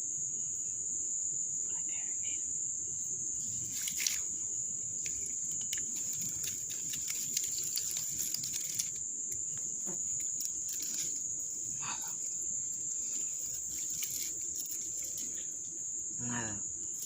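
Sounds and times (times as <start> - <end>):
high-pitched insect chorus: 0.0 - 17.0
light clicks and patter: 3.7 - 4.3, 5.0 - 15.7.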